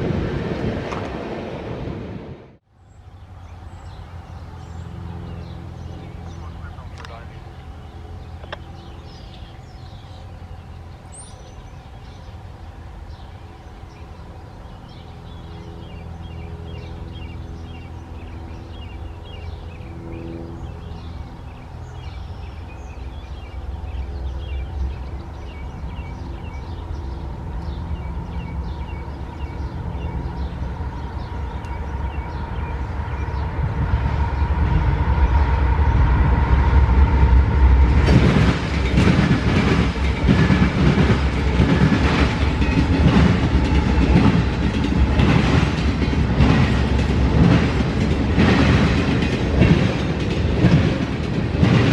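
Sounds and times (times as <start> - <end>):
diesel locomotive engines: 0.0 - 51.9
train wheels clacking on rails: 37.1 - 51.9.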